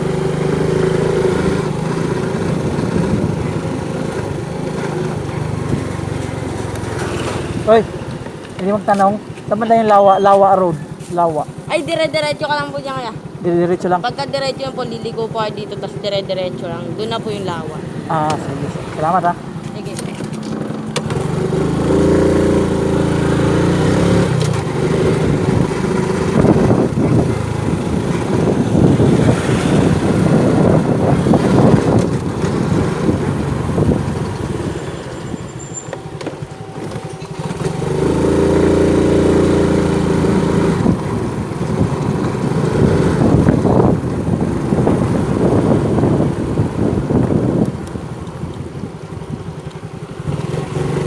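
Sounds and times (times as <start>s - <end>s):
motorcycle engine running: 0.0s - 51.0s
wind noise on microphone: 1.4s - 4.4s, 21.1s - 35.7s, 36.7s - 49.6s.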